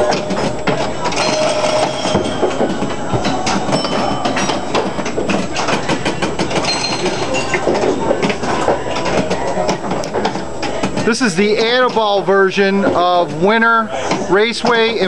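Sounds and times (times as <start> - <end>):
pinball relays clattering: 0.0 - 15.0
short ringing tones: 1.2 - 2.6.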